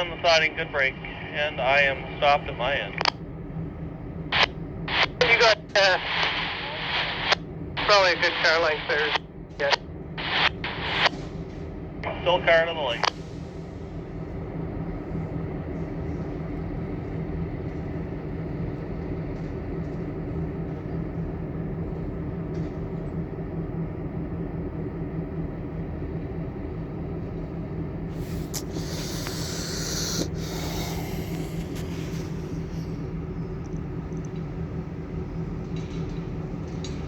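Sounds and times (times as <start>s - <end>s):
diesel locomotives idling: 0.0s - 6.2s, 7.8s - 23.8s, 24.5s - 37.0s
loud air hiss: 28.2s - 33.0s.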